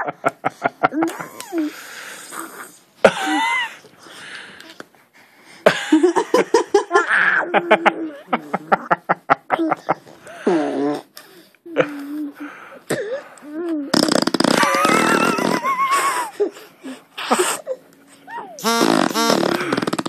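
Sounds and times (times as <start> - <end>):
laughter: 5.7 - 10.0, 14.6 - 16.4
baby blowing raspberries: 18.6 - 20.0.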